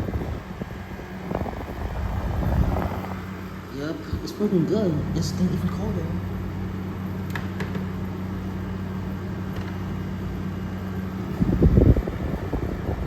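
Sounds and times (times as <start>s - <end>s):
low rumble: 0.0s - 3.5s
air conditioner humming: 0.0s - 13.0s
fan airflow: 0.0s - 13.0s.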